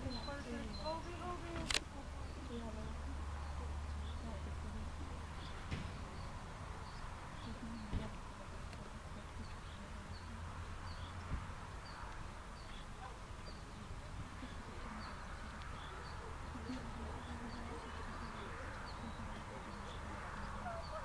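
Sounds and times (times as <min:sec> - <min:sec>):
small bird chirping: 0:00.0 - 0:01.6, 0:09.2 - 0:21.0.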